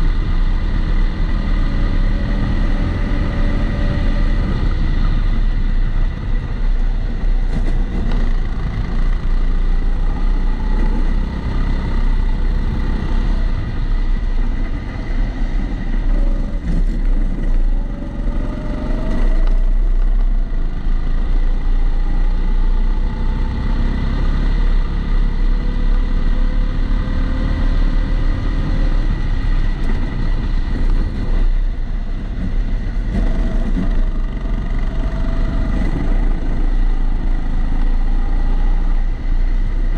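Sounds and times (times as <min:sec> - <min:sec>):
heavy low rumble: 0:00.0 - 0:22.6.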